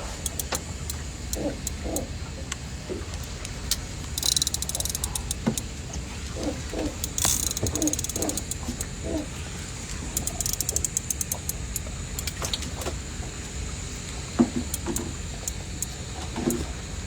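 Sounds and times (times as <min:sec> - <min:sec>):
fishing reel clicking: 0:00.0 - 0:02.2, 0:03.1 - 0:05.8, 0:06.4 - 0:09.1, 0:09.8 - 0:13.0, 0:14.6 - 0:16.7.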